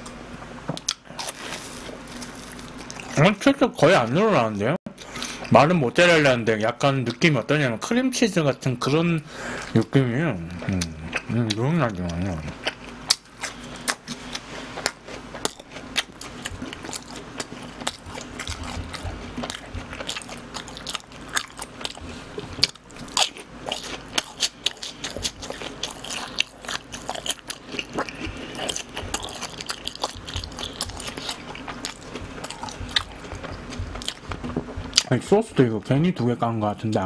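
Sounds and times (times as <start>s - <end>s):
crunchy chewing: 0.8s - 3.2s, 9.5s - 35.2s.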